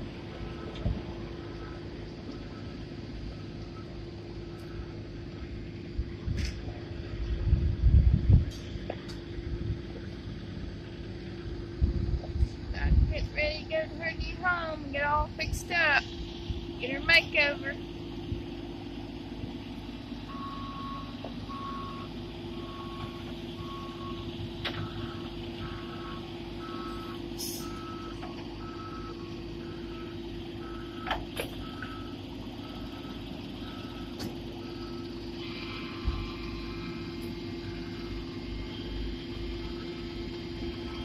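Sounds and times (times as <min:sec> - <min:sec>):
vehicle backup alarm beeping: 0:00.0 - 0:05.6, 0:16.8 - 0:19.0, 0:19.6 - 0:41.0
engine hum: 0:00.0 - 0:41.0.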